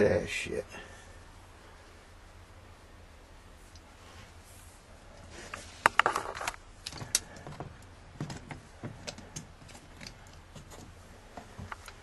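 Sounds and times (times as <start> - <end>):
sharp clicks and light knocks: 5.5 - 12.0.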